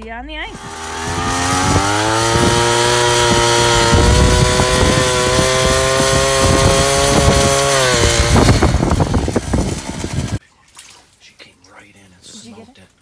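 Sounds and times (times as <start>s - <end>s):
small petrol engine running: 0.5s - 10.4s
wind hiss: 0.5s - 10.4s.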